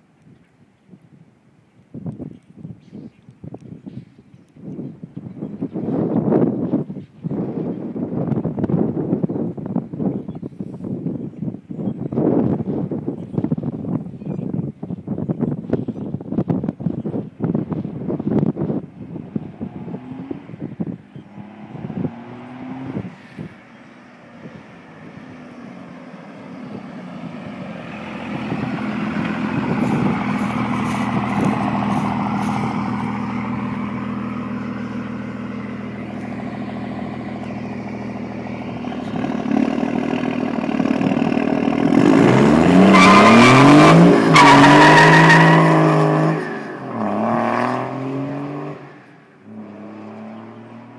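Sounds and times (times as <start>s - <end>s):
diesel engine revving: 19.2s - 50.9s.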